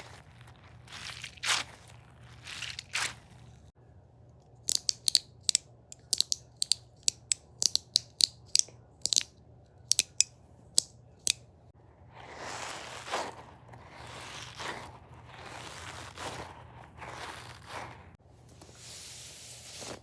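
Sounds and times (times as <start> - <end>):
sharp clicks: 4.7 - 9.3, 9.9 - 11.4.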